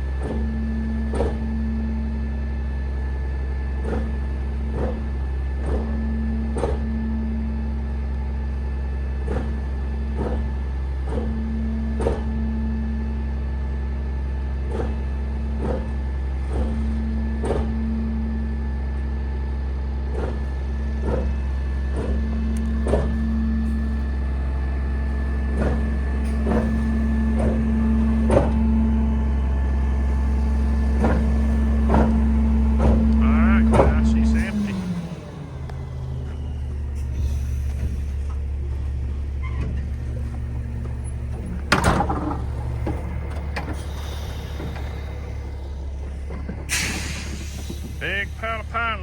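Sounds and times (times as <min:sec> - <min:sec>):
truck engine running: 0:00.0 - 0:49.0.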